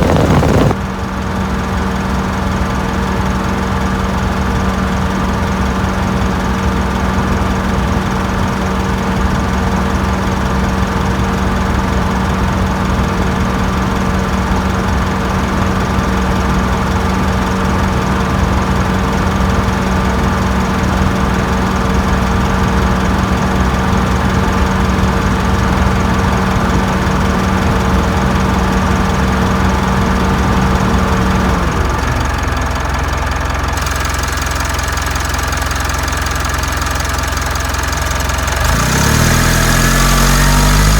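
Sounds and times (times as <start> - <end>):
steady hum: 0.0 - 0.8
diesel engine idling with clatter: 0.0 - 40.9.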